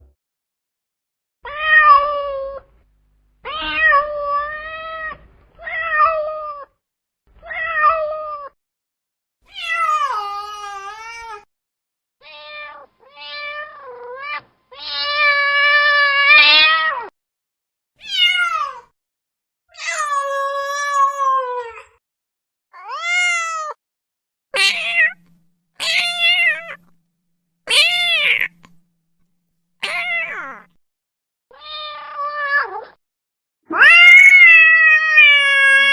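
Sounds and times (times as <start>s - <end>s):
cat meowing: 3.4s - 6.7s, 12.2s - 17.1s, 18.0s - 18.8s, 22.8s - 23.8s, 24.6s - 27.0s, 27.7s - 28.8s, 29.8s - 30.8s, 33.7s - 35.9s.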